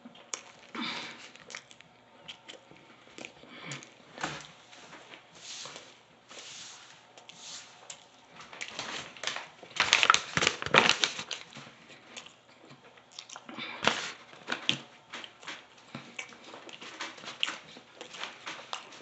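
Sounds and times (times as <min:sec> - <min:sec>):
crunchy chewing and biting: 0:00.1 - 0:05.3.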